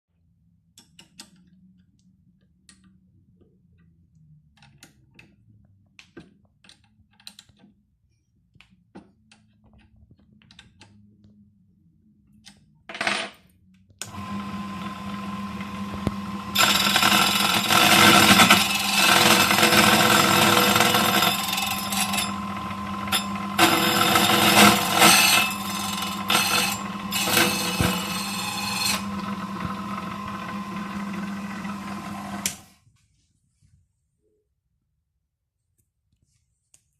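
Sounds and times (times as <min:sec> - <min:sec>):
key cutter grinding: 0:14.0 - 0:32.6
motor humming: 0:14.0 - 0:32.7.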